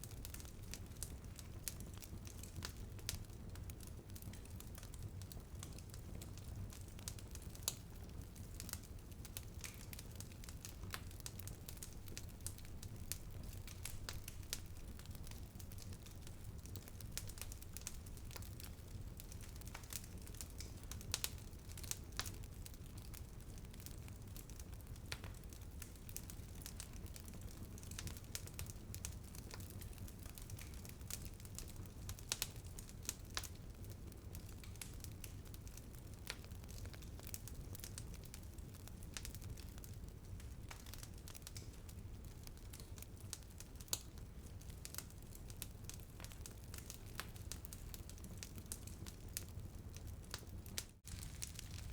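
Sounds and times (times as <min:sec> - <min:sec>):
wood fire crackling and popping: 0:00.0 - 0:51.9.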